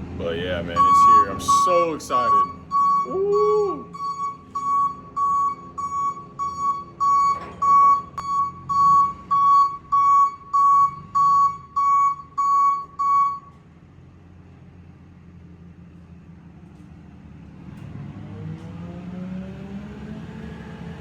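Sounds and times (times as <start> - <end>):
low engine hum: 0.0 - 21.0
reverse warning beeper: 0.5 - 13.6.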